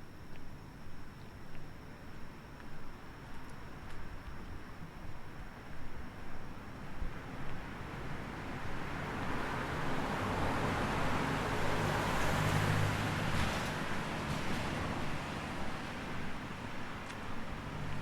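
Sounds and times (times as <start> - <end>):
car passing on street: 7.2 - 18.0.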